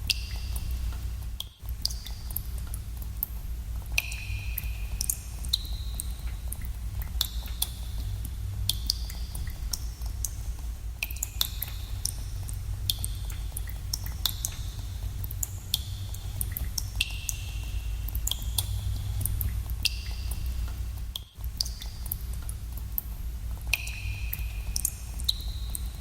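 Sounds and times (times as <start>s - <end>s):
steady low rumble: 0.0s - 26.0s
water drops plinking into pools: 4.0s - 10.4s, 11.0s - 26.0s.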